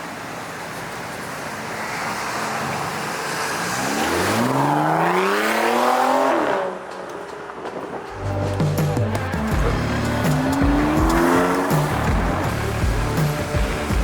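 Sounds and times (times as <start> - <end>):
road noise: 0.0 - 14.0
car engine accelerating: 3.4 - 6.8, 8.1 - 14.0.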